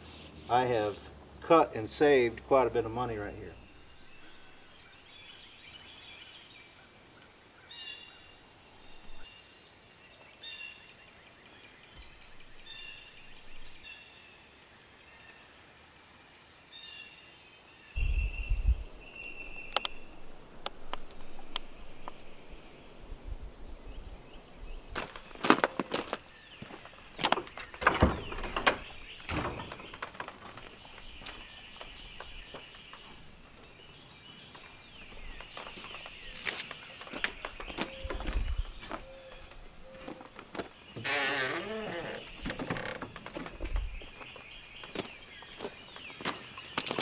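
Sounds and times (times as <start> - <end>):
songbirds chirping: 0.0 - 47.0.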